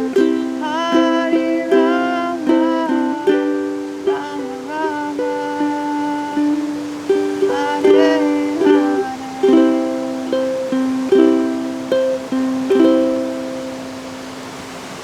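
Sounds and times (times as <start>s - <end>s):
ukulele strumming chords: 0.0s - 15.0s.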